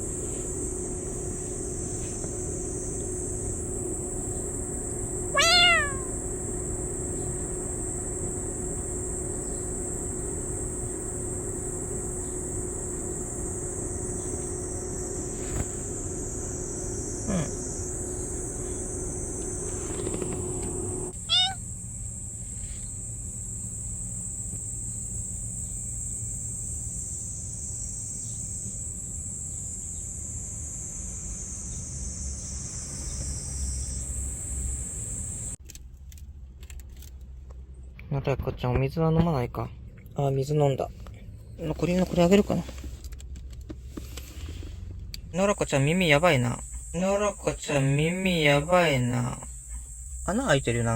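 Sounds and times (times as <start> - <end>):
high-pitched hiss: 0.0 - 21.6
steady low hum: 0.0 - 35.6
cat meowing: 5.3 - 6.2, 21.2 - 21.6.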